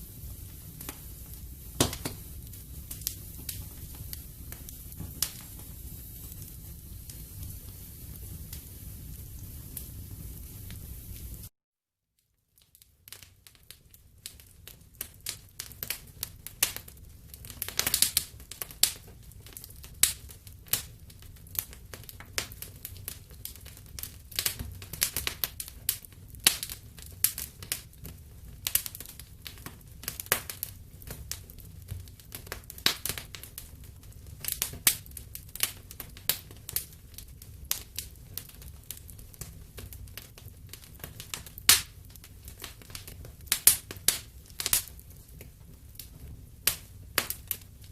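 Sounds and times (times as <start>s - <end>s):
wood fire crackling and popping: 0.0s - 11.5s, 12.5s - 47.9s.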